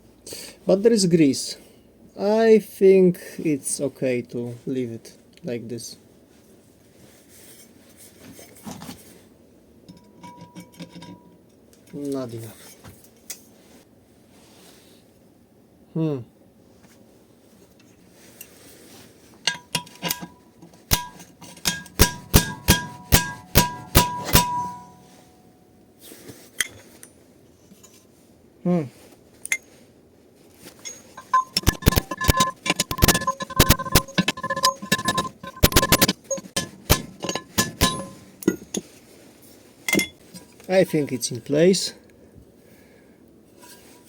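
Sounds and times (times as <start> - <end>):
hammer blows on metal: 20.9 - 25.3.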